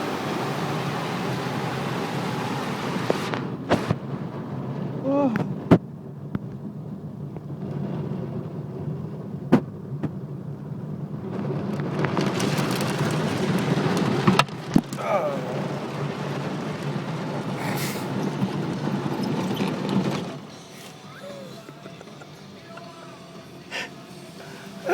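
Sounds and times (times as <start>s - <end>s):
water spray hissing on car: 0.0s - 3.9s, 11.4s - 24.9s
car wash rumble: 0.0s - 24.9s.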